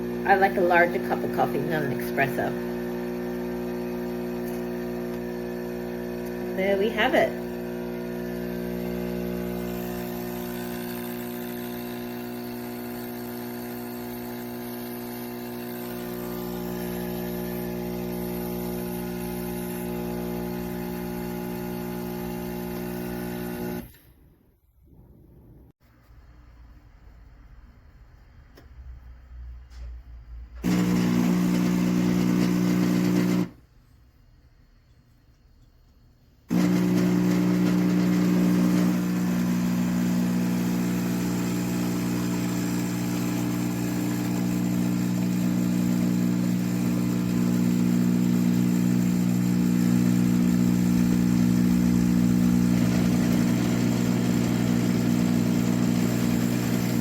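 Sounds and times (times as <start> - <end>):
espresso machine pump humming: 0.0 - 24.0, 30.6 - 33.6, 36.5 - 57.0.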